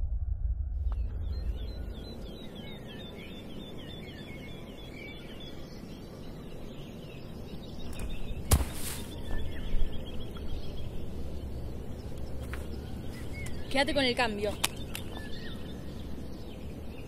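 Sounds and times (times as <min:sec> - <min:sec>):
low outdoor rumble: 0:00.0 - 0:03.8, 0:07.4 - 0:17.0
bird chirping rapidly: 0:07.7 - 0:17.0.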